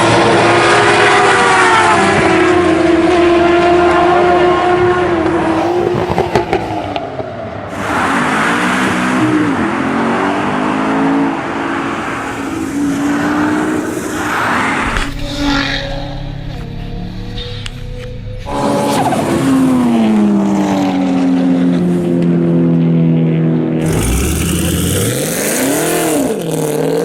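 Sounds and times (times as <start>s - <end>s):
car engine revving: 0.0s - 21.8s, 23.8s - 27.0s
loud rushing noise: 5.3s - 9.5s.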